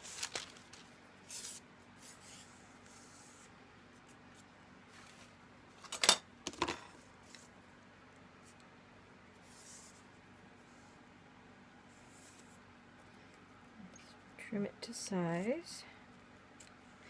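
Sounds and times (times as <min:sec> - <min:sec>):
tissue paper rustling: 0:00.0 - 0:03.5.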